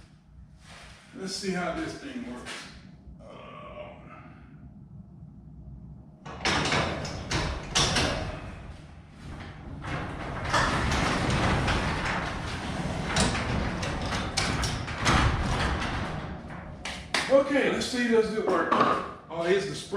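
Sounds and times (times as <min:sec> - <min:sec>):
garage door rattling on tracks: 0:06.2 - 0:17.4.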